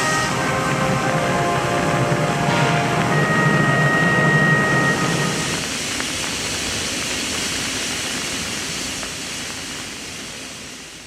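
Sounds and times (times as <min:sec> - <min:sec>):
steam locomotive hissing: 0:00.0 - 0:11.0.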